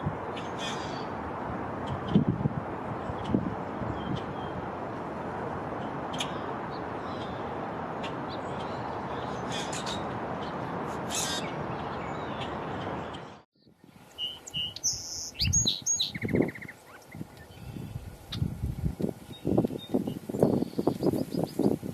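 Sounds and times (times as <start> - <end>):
small birds chirping: 8.2 - 18.5, 19.2 - 21.8
bird trill: 14.1 - 17.9.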